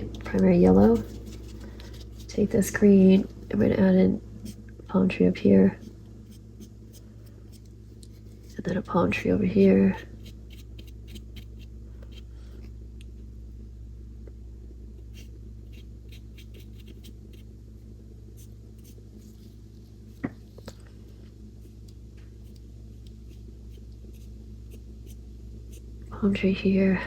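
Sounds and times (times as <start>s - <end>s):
steady low hum: 0.0s - 27.0s
paintbrush scratching on paper: 0.5s - 2.9s, 5.8s - 12.3s, 15.1s - 17.5s, 18.4s - 20.2s, 21.6s - 25.9s.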